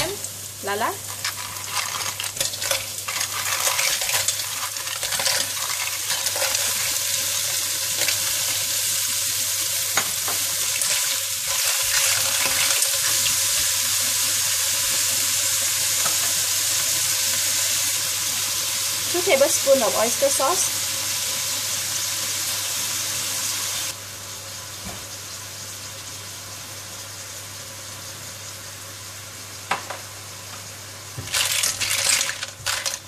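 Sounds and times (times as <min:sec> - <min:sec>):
frying sizzle: 0:00.0 - 0:33.0
clam shells clattering on metal: 0:31.3 - 0:33.0.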